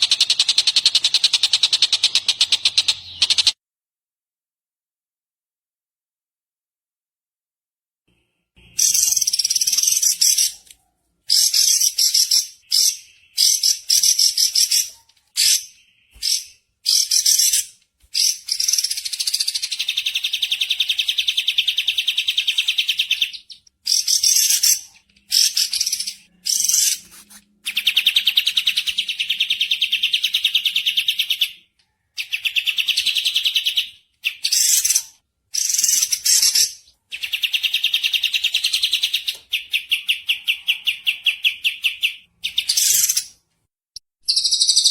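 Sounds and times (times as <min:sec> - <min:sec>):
songbird chattering and trilling: 0:00.0 - 0:03.6, 0:08.8 - 0:10.6, 0:11.3 - 0:27.0, 0:32.2 - 0:43.4, 0:44.2 - 0:44.9.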